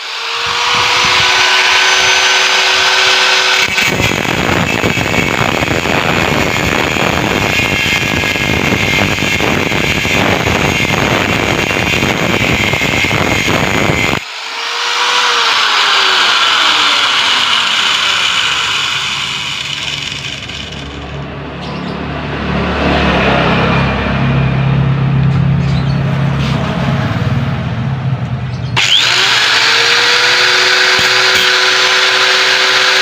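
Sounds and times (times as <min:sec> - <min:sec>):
angle grinder cutting steel: 0:00.0 - 0:21.3, 0:28.8 - 0:33.0.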